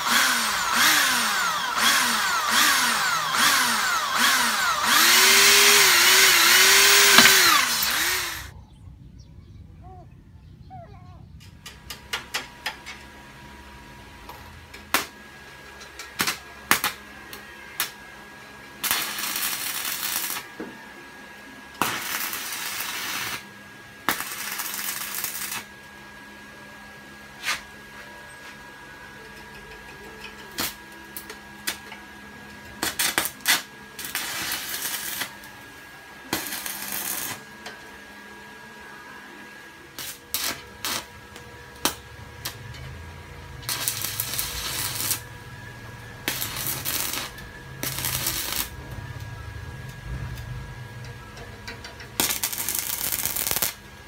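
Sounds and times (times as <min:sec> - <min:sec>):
welder crackling hiss: 0:00.0 - 0:08.5, 0:18.8 - 0:20.5, 0:21.8 - 0:23.4, 0:24.1 - 0:25.7, 0:32.8 - 0:35.4, 0:36.3 - 0:37.5, 0:40.0 - 0:41.1, 0:43.6 - 0:45.4, 0:46.2 - 0:48.8, 0:52.2 - 0:53.8
steady hum: 0:26.3 - 0:54.0.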